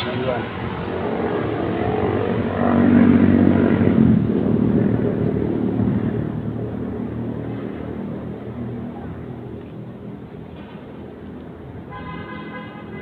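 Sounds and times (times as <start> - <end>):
vehicle engine passing by: 0.0 - 9.6.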